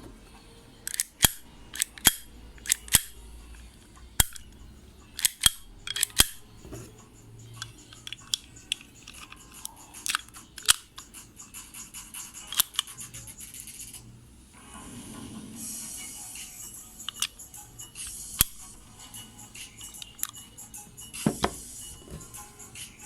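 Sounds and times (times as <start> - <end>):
metallic clicks of pistol parts: 0.8 - 6.5, 7.6 - 11.1, 12.4 - 13.0, 17.0 - 17.4, 18.0 - 18.8.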